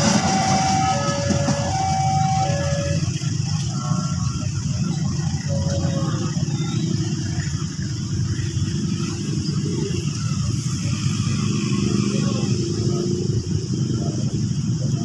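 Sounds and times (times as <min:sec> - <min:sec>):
high hiss: 0:00.0 - 0:15.0
train low rumble: 0:00.0 - 0:15.0.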